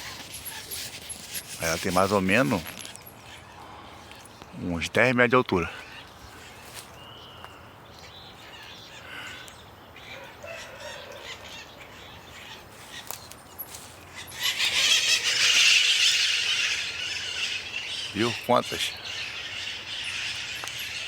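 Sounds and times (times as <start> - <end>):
birds chirping: 0.0 - 21.0
many birds squawking: 8.4 - 21.0.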